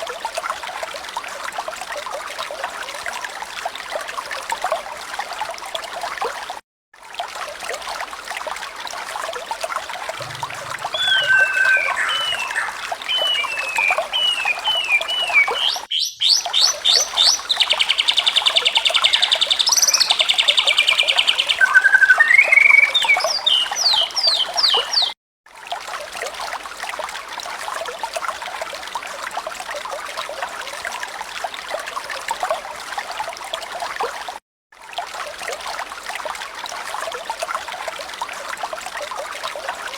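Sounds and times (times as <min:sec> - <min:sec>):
trickle of running water: 0:00.0 - 0:39.9
short falling chirps: 0:10.2 - 0:17.8
quick rising whistles: 0:10.2 - 0:24.0
bird calls: 0:10.2 - 0:25.1.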